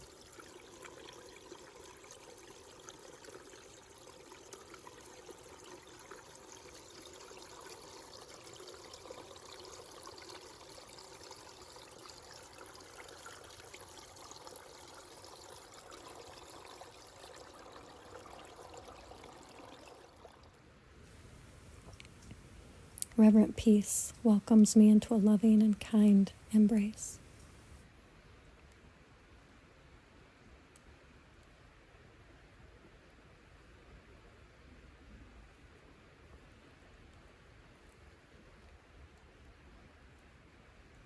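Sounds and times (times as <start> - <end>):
stream trickling over rocks: 0.0 - 27.8.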